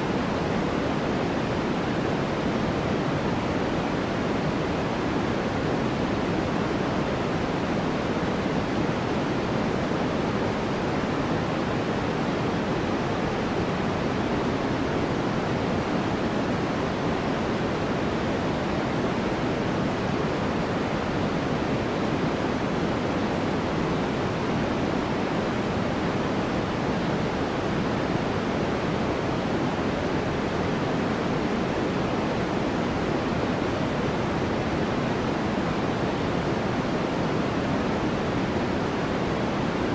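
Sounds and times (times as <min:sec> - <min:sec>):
soft even white noise: 0:00.0 - 0:39.9.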